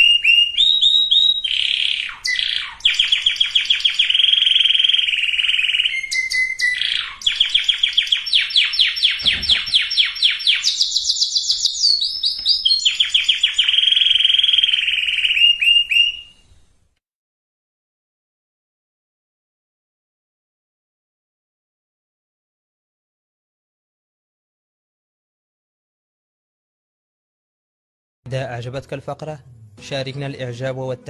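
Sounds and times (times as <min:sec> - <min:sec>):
canary singing trills: 0:00.0 - 0:16.6.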